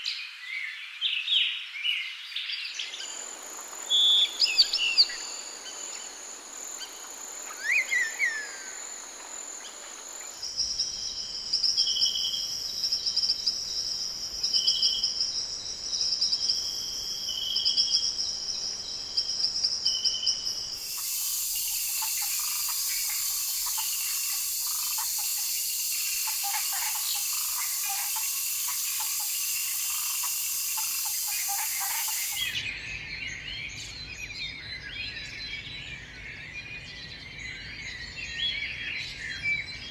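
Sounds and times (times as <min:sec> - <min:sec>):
bird calls: 0:02.8 - 0:11.0, 0:20.3 - 0:32.8
dense high insect chorus: 0:02.8 - 0:34.1.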